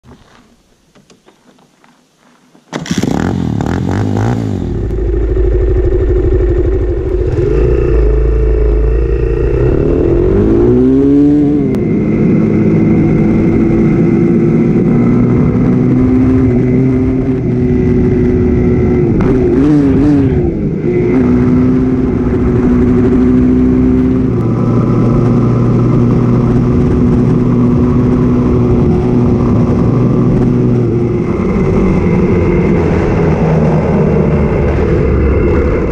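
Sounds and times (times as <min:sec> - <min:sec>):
dirt bike engine revving: 0:02.8 - 0:17.4.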